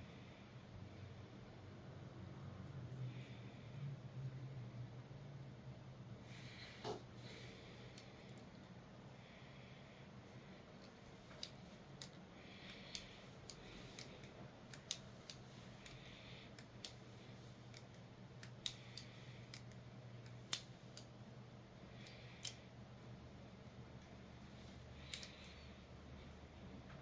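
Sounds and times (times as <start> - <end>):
multitool metal clicks and snaps: 10.8 - 16.0, 16.6 - 17.0, 17.7 - 21.2, 22.0 - 22.6, 25.0 - 25.6.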